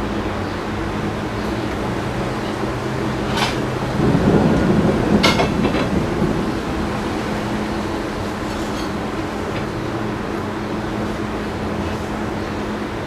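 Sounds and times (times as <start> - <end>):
thunder rumble: 0.0 - 12.8
background hum and hiss: 0.0 - 13.0.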